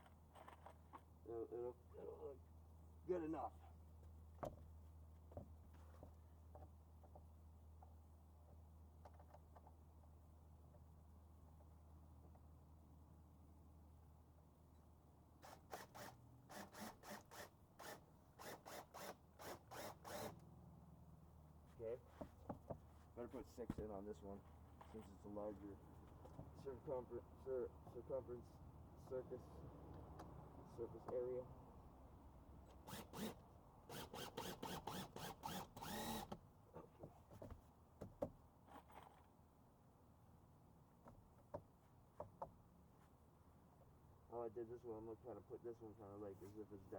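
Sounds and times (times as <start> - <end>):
power tool whir: 15.4 - 20.4, 32.8 - 36.4
rasping screwing strokes: 15.4 - 20.4, 32.8 - 36.4.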